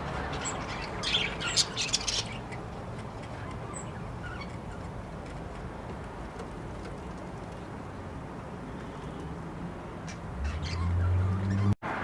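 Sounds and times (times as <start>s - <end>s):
budgies chirping: 0.1s - 4.9s, 10.1s - 11.7s.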